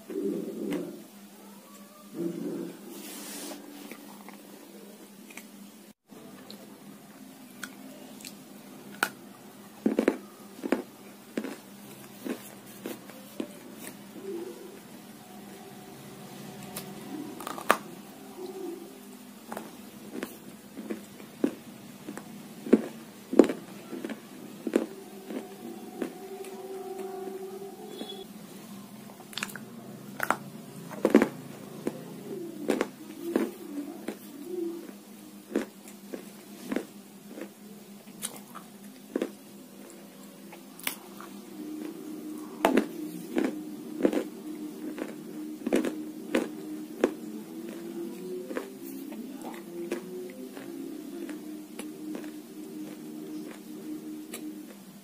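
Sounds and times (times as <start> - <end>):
faint steady hum: 0.0 - 55.0
chewing crunchy snack: 9.8 - 14.4, 16.6 - 17.9, 19.4 - 27.2, 29.3 - 53.7.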